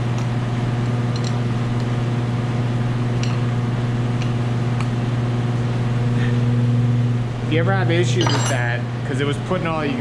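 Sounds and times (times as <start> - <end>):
machine hum of shop equipment: 0.0 - 10.0.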